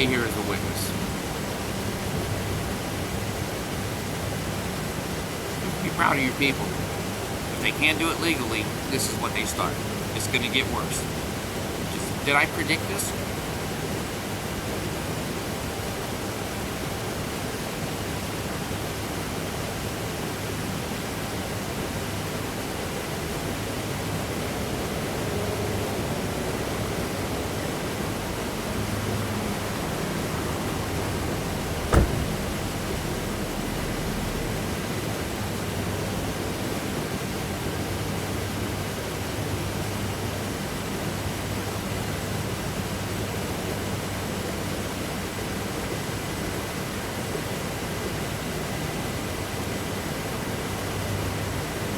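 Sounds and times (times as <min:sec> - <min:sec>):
steady noise hiss: 0:00.0 - 0:24.9, 0:27.0 - 0:51.9
sharp knock: 0:31.9 - 0:32.6.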